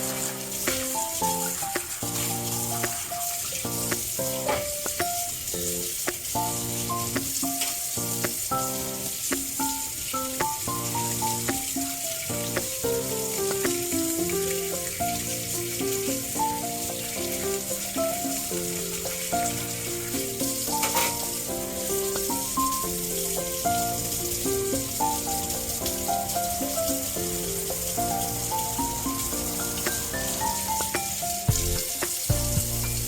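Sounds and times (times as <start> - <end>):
gentle instrumental melody: 0.0 - 33.0
high crackling hiss: 0.0 - 33.0.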